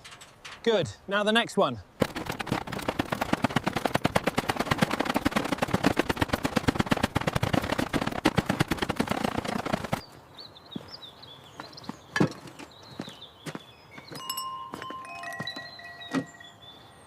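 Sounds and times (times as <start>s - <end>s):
rapid hammering: 2.0s - 10.0s.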